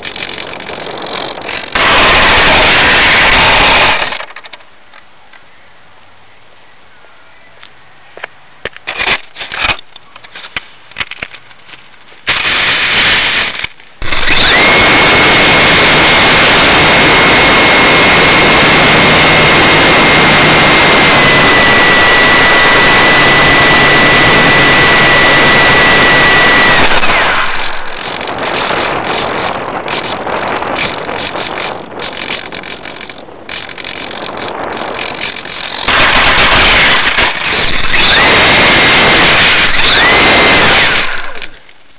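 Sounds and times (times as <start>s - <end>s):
electric motor rushing whine: 0.6s - 4.4s, 12.3s - 41.7s
short loud burst: 35.8s - 41.6s.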